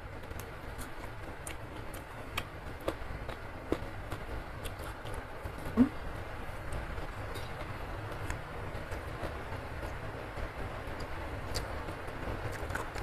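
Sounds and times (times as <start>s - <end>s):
chewing with crisp crunches: 0.3s - 5.2s, 12.5s - 13.0s.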